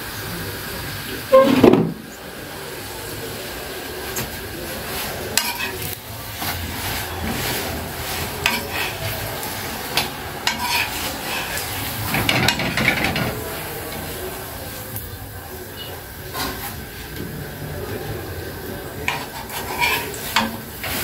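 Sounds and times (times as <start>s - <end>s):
flatbread sizzling in a pan: 0.0s - 21.0s
clicks and scrapes in a pan: 5.3s - 6.6s, 7.2s - 9.2s, 9.9s - 13.4s, 19.0s - 21.0s.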